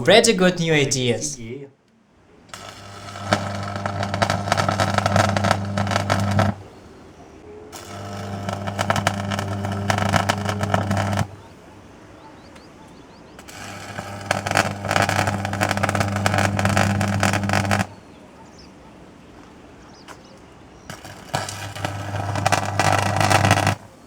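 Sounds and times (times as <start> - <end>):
electric welding arc crackling: 2.5 - 6.9, 7.8 - 11.6, 13.4 - 18.0, 20.9 - 24.0.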